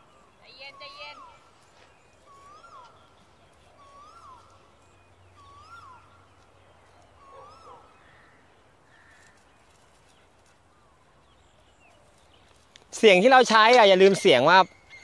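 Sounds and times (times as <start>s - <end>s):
faint bird calling: 0.0s - 10.0s.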